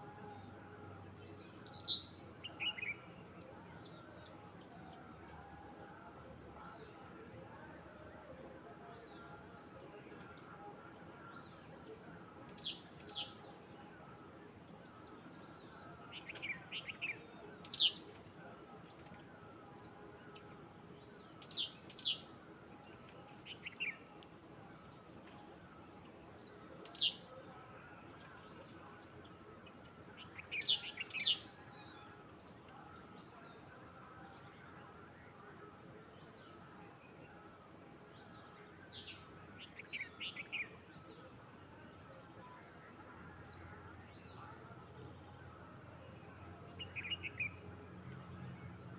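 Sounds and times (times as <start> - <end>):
faint outdoor background: 0.0 - 48.9.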